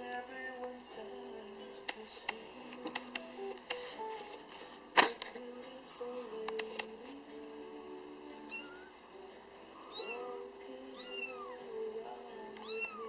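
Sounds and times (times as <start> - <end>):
soft background music: 0.0 - 13.0
kitten meowing: 8.5 - 8.9, 9.9 - 10.4, 11.0 - 11.6, 12.6 - 13.0.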